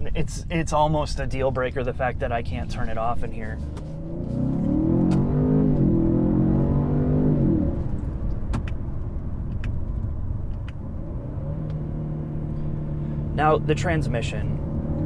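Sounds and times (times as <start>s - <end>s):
road noise: 0.0s - 15.0s
car engine accelerating: 1.6s - 15.0s.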